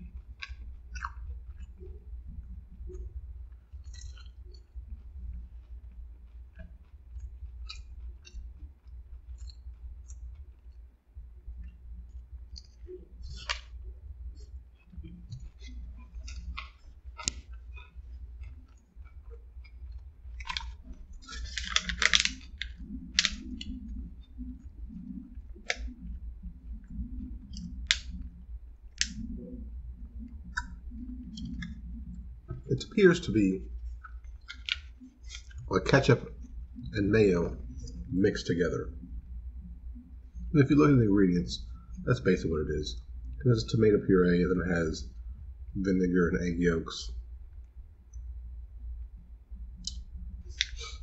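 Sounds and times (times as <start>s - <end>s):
person chewing food: 0.0s - 32.7s, 33.6s - 35.7s
crinkling rustle: 0.0s - 38.2s
low steady hum: 0.0s - 51.0s
paper napkin crackling: 20.4s - 23.8s.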